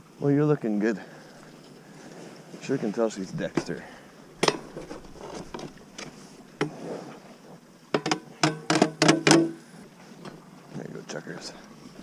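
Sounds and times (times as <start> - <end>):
sharp knocks and clatters: 4.4 - 6.7, 7.9 - 9.6.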